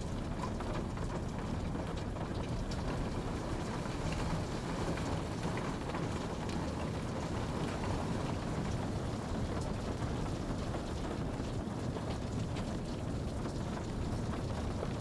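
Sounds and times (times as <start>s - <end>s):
steady rain hiss: 2.6s - 12.2s.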